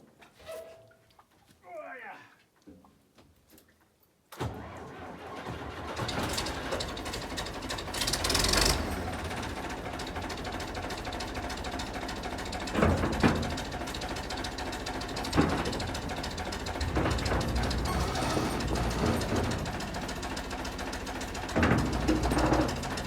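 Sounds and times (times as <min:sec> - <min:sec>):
knocks: 0:15.2 - 0:20.2, 0:21.4 - 0:23.0.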